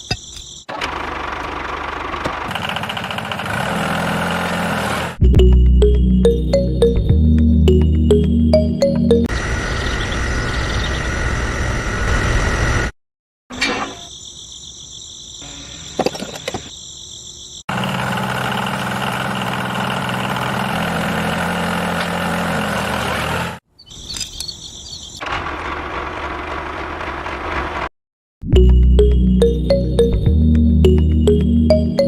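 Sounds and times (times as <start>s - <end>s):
music: 5.2s - 9.3s, 28.4s - 32.0s.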